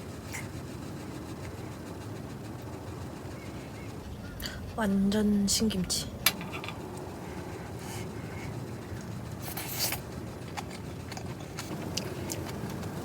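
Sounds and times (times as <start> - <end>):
low rumble: 2.7 - 9.4
person chewing food: 7.8 - 13.0
crunchy rasp: 9.4 - 12.9.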